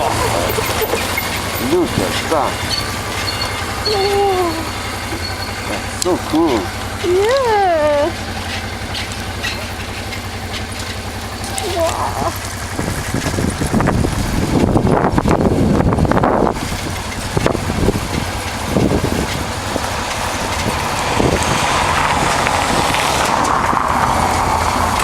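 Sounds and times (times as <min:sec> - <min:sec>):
motorcycle engine running: 0:00.0 - 0:25.0
rushing wind noise: 0:12.1 - 0:25.0.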